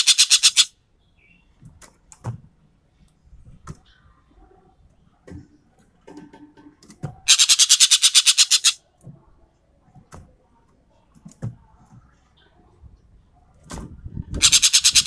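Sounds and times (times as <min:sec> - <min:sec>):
bird harsh rattling call: 0:00.0 - 0:00.7, 0:07.3 - 0:08.8, 0:14.4 - 0:15.0.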